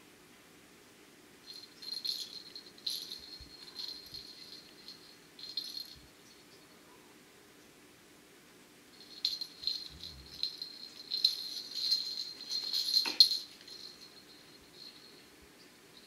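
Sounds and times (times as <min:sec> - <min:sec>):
small bell jingling: 0:01.4 - 0:06.4, 0:09.0 - 0:16.0.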